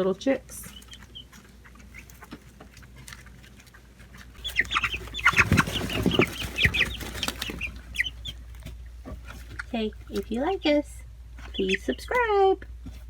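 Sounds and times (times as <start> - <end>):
chicks peeping: 0.0 - 13.0
knocks and scuffling: 0.0 - 13.0.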